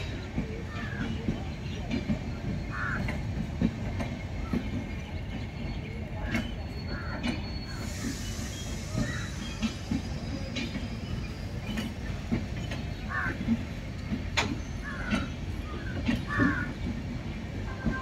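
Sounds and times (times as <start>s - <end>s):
train wheels rumbling on rails: 0.0s - 18.0s
sharp clanks from wheels: 6.3s - 17.0s.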